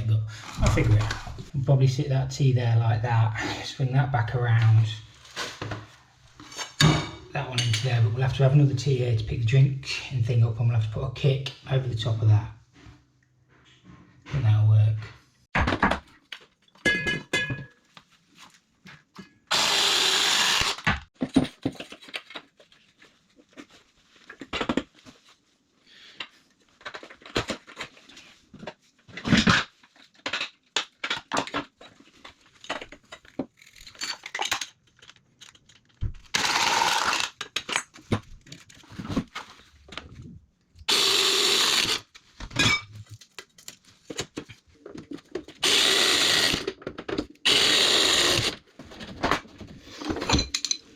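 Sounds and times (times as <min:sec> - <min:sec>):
cordless drill running: 0:19.5 - 0:20.9, 0:36.4 - 0:37.3, 0:40.9 - 0:42.0, 0:45.6 - 0:46.7, 0:47.5 - 0:48.6.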